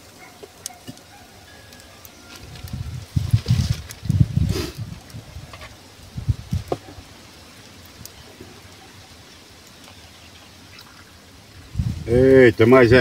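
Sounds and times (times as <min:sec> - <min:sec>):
faint steady hiss: 0:00.0 - 0:13.0
wind buffeting microphone: 0:02.4 - 0:07.1, 0:11.5 - 0:13.0.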